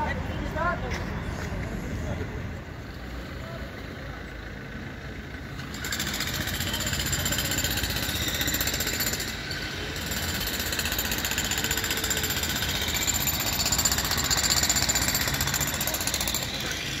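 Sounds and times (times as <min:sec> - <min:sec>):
jackhammer hammering road surface: 0:05.2 - 0:17.0.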